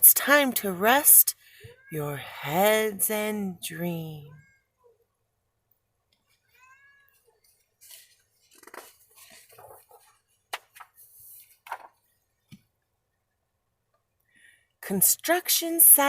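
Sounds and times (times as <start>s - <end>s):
book pages rustling: 7.4s - 12.6s.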